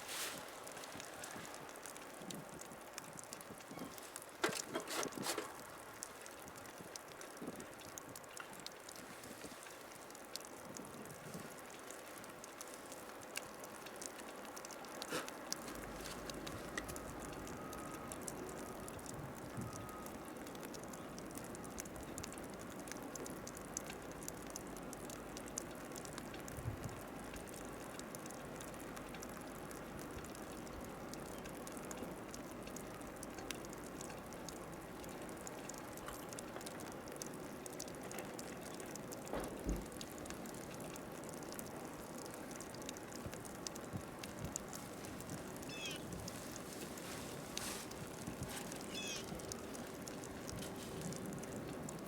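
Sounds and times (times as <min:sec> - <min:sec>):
snowstorm hiss: 0:00.0 - 0:07.6, 0:43.9 - 0:52.0
faint fine ticks: 0:00.1 - 0:52.0.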